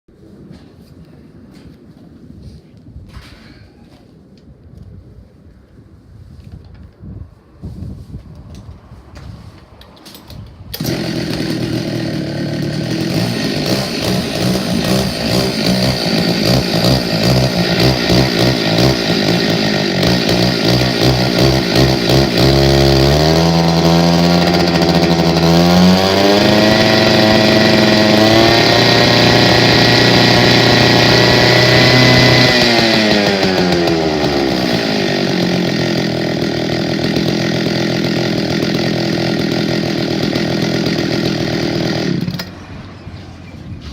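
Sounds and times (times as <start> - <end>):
two-stroke engine cutter revving: 10.7 - 42.8.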